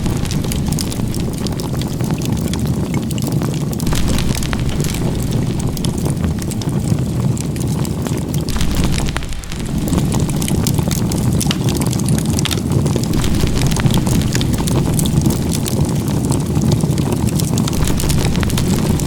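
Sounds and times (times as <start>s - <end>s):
steady low rumble: 0.0s - 3.1s, 3.7s - 19.0s
campfire crackling and popping: 0.0s - 19.0s.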